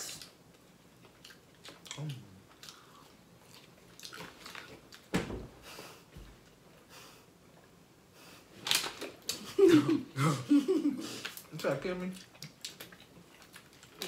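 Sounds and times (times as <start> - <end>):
quiet chewing mouth noises: 0.0 - 5.0, 11.1 - 14.0.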